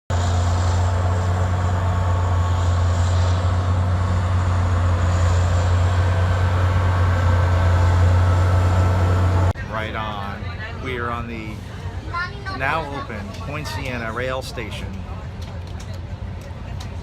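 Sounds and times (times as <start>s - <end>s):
vehicle engine low hum: 0.1s - 17.0s.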